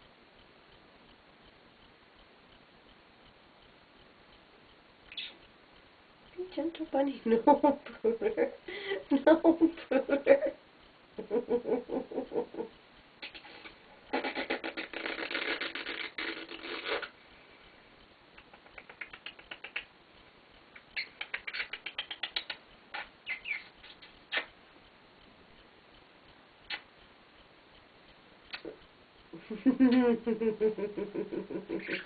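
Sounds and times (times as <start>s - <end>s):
quick sharp clicks: 18.4s - 20.0s, 20.7s - 24.6s, 26.6s - 27.0s.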